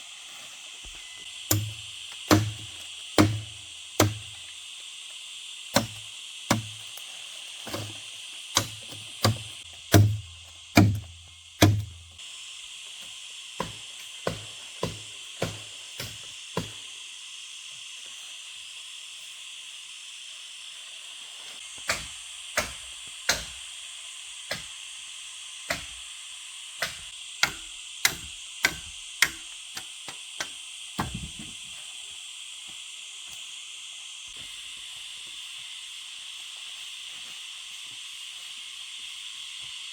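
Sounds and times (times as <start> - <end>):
steady high hiss: 0.0 - 39.9
sharp knocks: 1.5 - 4.3, 8.6 - 12.1.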